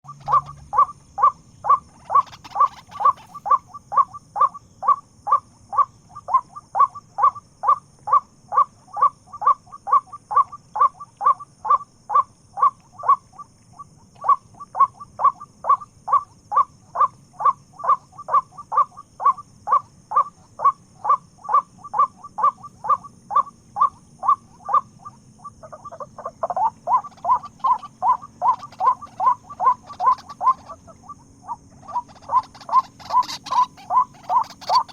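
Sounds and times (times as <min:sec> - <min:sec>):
waterhen calling: 0:00.0 - 0:05.0, 0:14.2 - 0:34.9.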